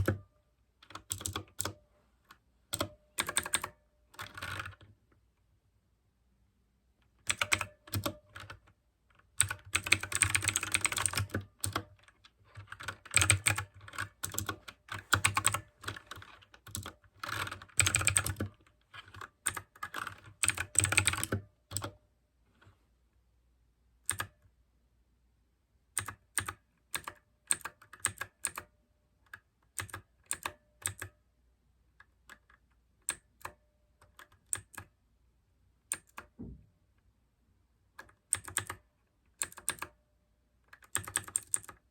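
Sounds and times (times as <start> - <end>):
typing on a mechanical keyboard: 0.0 - 1.8, 2.7 - 5.0, 7.2 - 22.0, 24.1 - 24.4, 26.0 - 28.7, 29.3 - 31.2, 32.1 - 35.0, 35.9 - 36.4, 38.0 - 40.0, 40.7 - 41.9.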